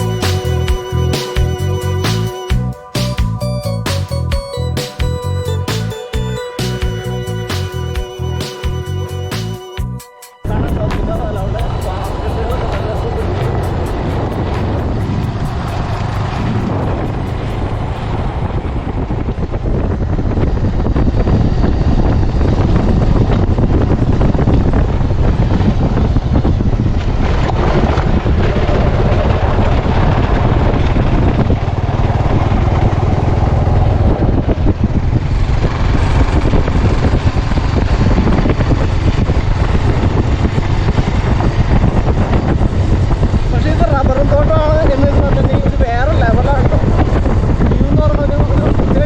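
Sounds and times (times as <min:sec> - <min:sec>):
motorcycle engine running: 0:05.0 - 0:49.0
wind on microphone: 0:07.0 - 0:49.0.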